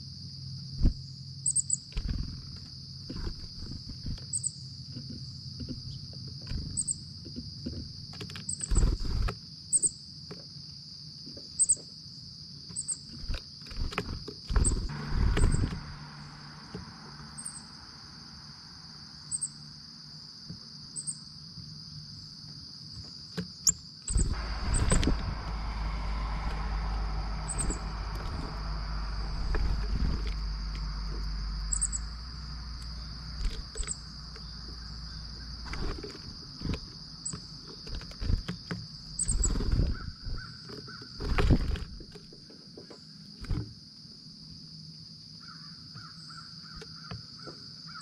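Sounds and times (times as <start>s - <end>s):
insect chorus: 0.0s - 48.0s
low rumble: 14.8s - 19.7s, 24.1s - 35.6s.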